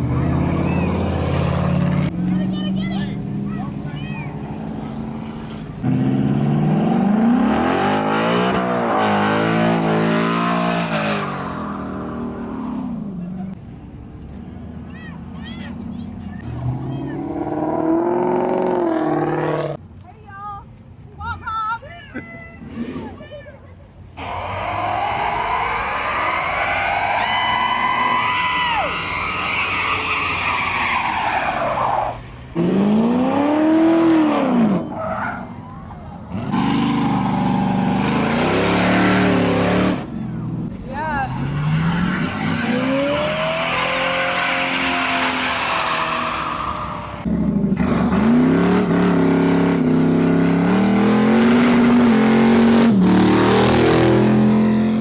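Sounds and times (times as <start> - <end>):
car engine revving: 0.0 - 3.6, 5.8 - 13.0, 24.2 - 35.3, 36.3 - 40.2, 41.1 - 55.0
tires squealing: 24.2 - 55.0.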